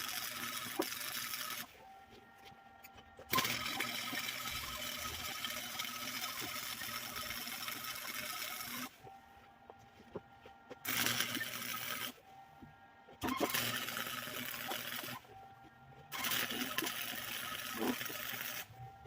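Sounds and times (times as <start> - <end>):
welding arc crackling and hissing: 3.3 - 8.9, 10.8 - 12.2, 13.2 - 15.2, 16.1 - 18.7.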